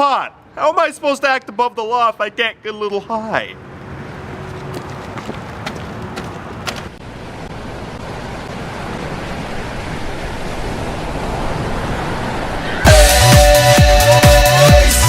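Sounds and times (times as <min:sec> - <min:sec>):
ocean surf rushing: 0:06.9 - 0:14.8.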